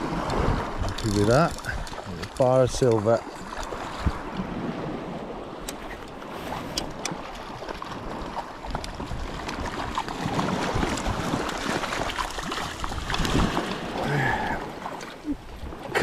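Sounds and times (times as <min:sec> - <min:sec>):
water lapping against rocks: 0:00.0 - 0:16.0
wind buffeting microphone: 0:00.0 - 0:16.0.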